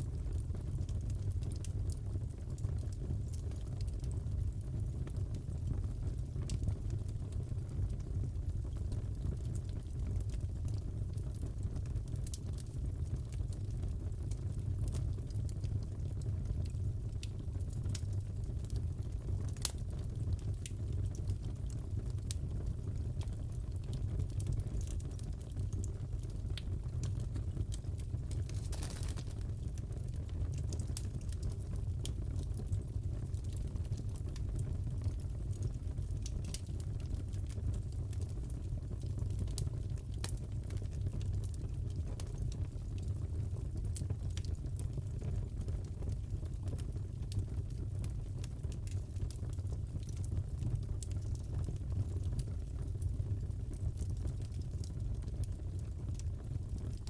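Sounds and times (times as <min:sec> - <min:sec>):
fire crackles and pops: 0:00.0 - 0:57.0
burning wood rushing: 0:28.4 - 0:29.6.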